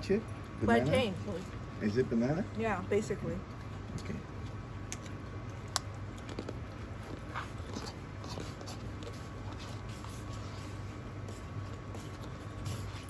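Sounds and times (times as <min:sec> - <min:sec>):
person chewing food: 0:03.5 - 0:13.0.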